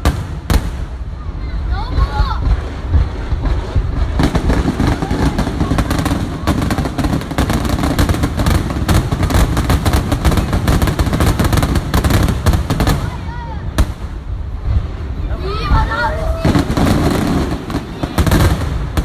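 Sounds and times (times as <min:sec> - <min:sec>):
low rumble: 0:00.0 - 0:07.3
fireworks bangs and crackles: 0:00.0 - 0:19.0.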